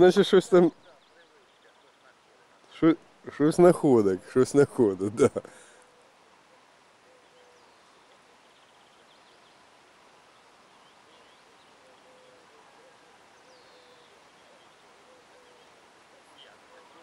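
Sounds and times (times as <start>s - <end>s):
low bird call: 5.4s - 17.0s.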